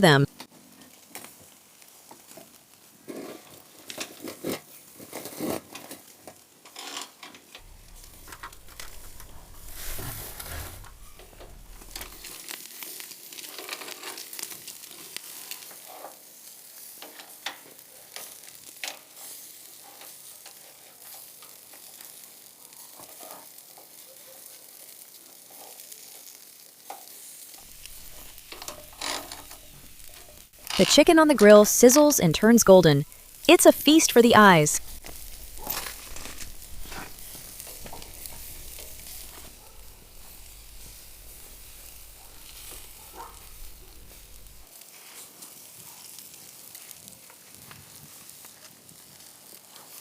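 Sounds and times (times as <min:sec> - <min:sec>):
food sizzling: 0:07.6 - 0:12.6, 0:27.4 - 0:44.7
fire crackling and popping: 0:07.6 - 0:16.0, 0:27.5 - 0:30.8, 0:33.0 - 0:33.5, 0:34.8 - 0:44.7.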